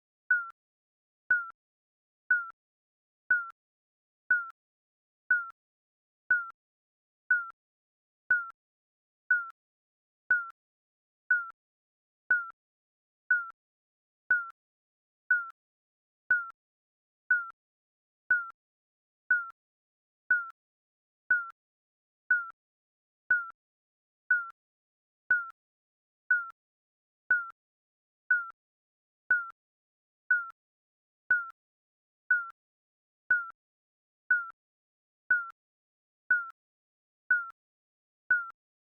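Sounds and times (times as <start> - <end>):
digital timer beep: 0.3 - 0.6, 1.3 - 1.6, 2.3 - 2.6, 3.3 - 3.6, 4.3 - 4.6, 5.3 - 5.6, 6.3 - 6.6, 7.3 - 7.6, 8.3 - 8.6, 9.3 - 9.6, 10.3 - 10.6, 11.3 - 11.6, 12.3 - 12.6, 13.3 - 13.6, 14.3 - 14.6, 15.3 - 15.6, 16.3 - 16.6, 17.3 - 17.6, 18.3 - 18.6, 19.3 - 19.6, 20.3 - 20.6, 21.3 - 21.6, 22.3 - 22.6, 23.3 - 23.6, 24.3 - 24.6, 25.3 - 25.6, 26.3 - 26.6, 27.3 - 27.6, 28.3 - 28.6, 29.3 - 29.6, 30.3 - 30.6, 31.3 - 31.6, 32.3 - 32.6, 33.3 - 33.6, 34.3 - 34.6, 35.3 - 35.6, 36.3 - 36.6, 37.3 - 37.6, 38.3 - 38.6.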